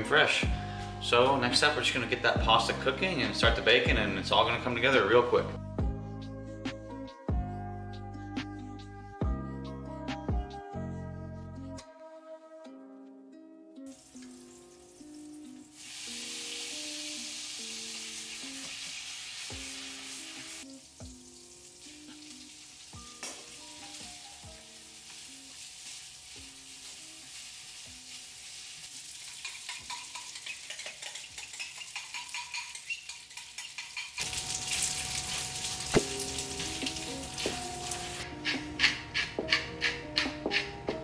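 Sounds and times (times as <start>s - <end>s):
bacon sizzling in a pan: 13.9s - 38.2s.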